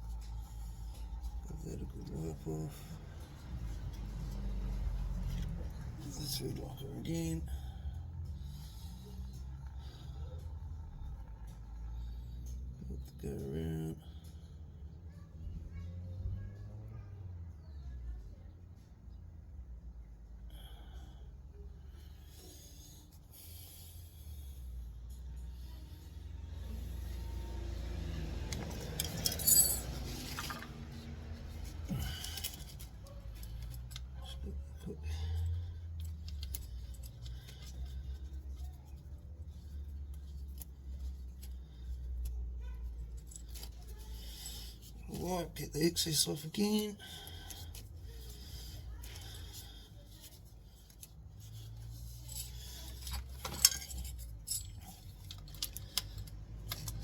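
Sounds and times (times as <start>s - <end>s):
metal parts clicking: 28.4s - 34.5s, 35.3s - 38.7s, 47.2s - 57.0s
hand tools clinking: 28.4s - 38.7s, 46.3s - 57.0s.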